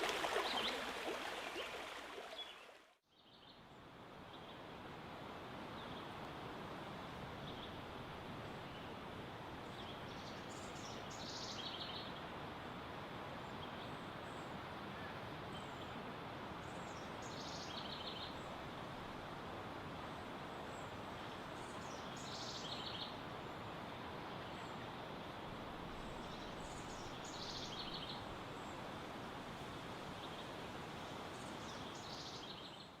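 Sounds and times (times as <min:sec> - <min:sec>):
running water rushing: 0:00.0 - 0:03.0.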